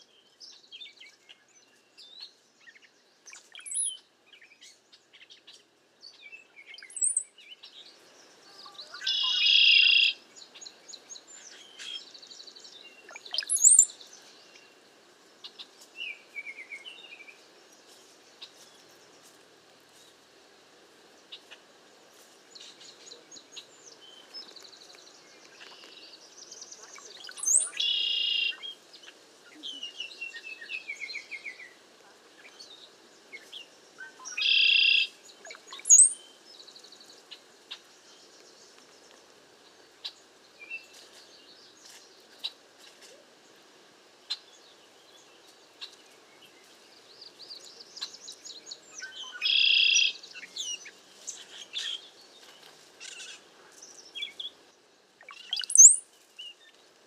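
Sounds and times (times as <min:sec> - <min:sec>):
harsh bird calls: 0:08.6 - 0:10.2, 0:49.1 - 0:50.7
high rising bird whistles: 0:55.3 - 0:56.0.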